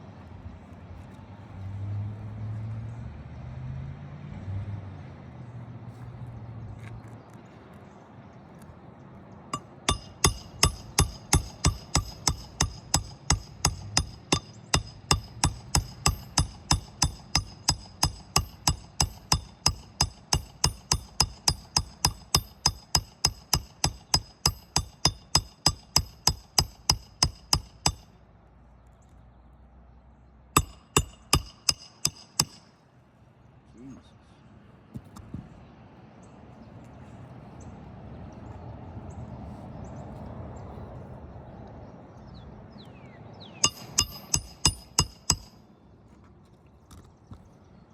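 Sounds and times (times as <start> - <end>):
hammer driving nails: 9.6 - 28.1, 30.6 - 32.7, 43.6 - 45.6.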